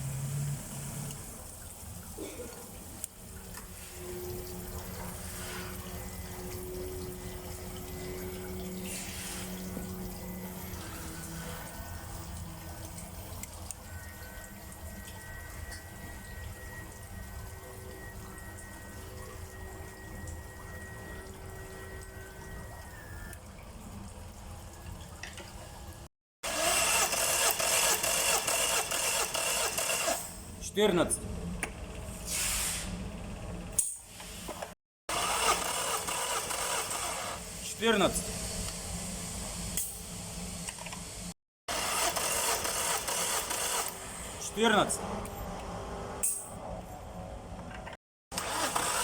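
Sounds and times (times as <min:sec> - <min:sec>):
rapid irregular engine clatter: 0:35.1 - 0:37.4.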